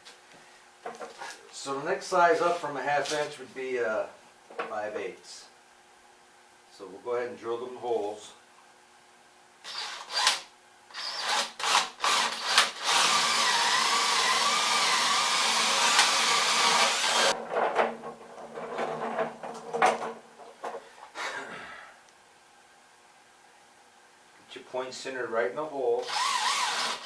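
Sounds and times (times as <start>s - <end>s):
power drill boring into wood: 9.6s - 17.3s, 26.0s - 27.0s
knocks and rattles: 17.3s - 20.9s.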